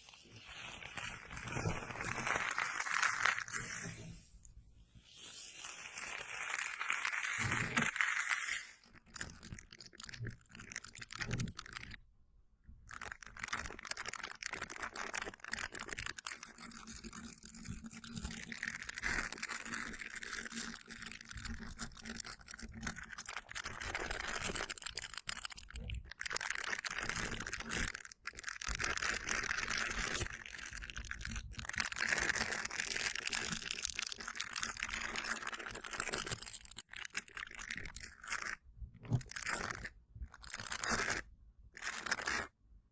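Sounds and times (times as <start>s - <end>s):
slime squishing: 0.0s - 4.2s.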